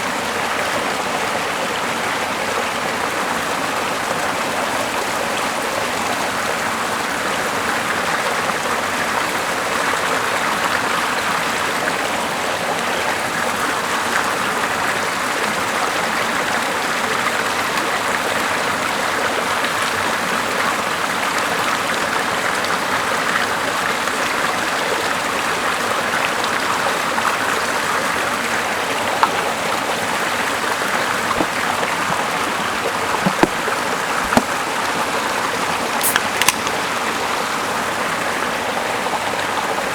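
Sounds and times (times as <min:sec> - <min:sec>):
sharp pops: 0:29.2 - 0:29.6, 0:31.1 - 0:32.4, 0:33.2 - 0:34.7, 0:36.0 - 0:36.9.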